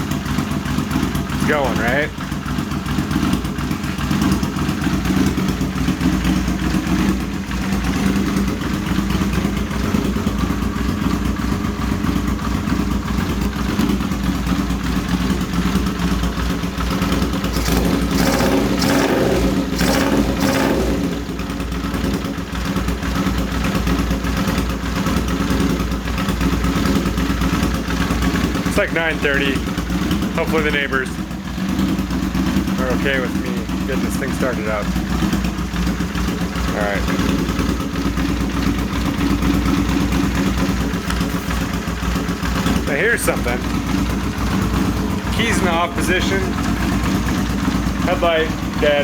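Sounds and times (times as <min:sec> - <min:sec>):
motorcycle engine idling: 0:00.0 - 0:49.0
man talking: 0:01.3 - 0:02.2, 0:28.7 - 0:29.6, 0:30.3 - 0:31.2, 0:32.8 - 0:35.0, 0:36.7 - 0:37.3, 0:42.8 - 0:43.7, 0:45.2 - 0:46.7, 0:48.0 - 0:49.0.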